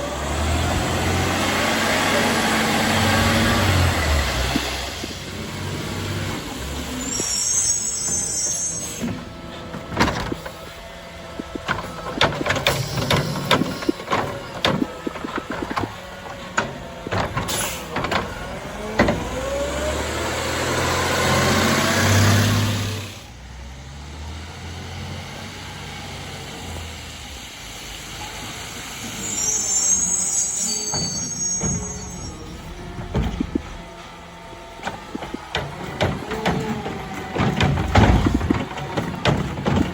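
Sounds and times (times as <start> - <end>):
truck engine revving: 0.0 - 29.5, 31.4 - 39.9
high squeal: 2.1 - 10.8, 11.4 - 18.0, 28.1 - 33.8
garbage truck arm clanks and knocks: 9.1 - 19.8, 30.9 - 34.0, 34.8 - 39.9.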